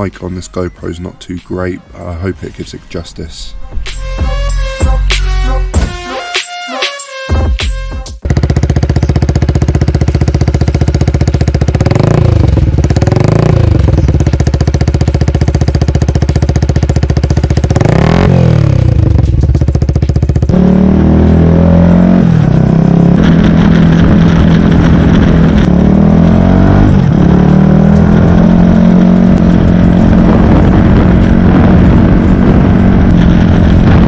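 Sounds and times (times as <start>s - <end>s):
motorcycle engine idling and revving: 8.2s - 34.0s.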